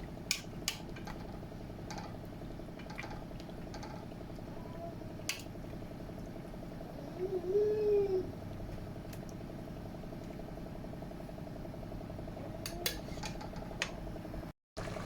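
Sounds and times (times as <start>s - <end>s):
steady hum: 0.0s - 15.0s
utensil clicking on pot: 0.3s - 1.3s, 5.2s - 5.5s, 12.6s - 14.0s.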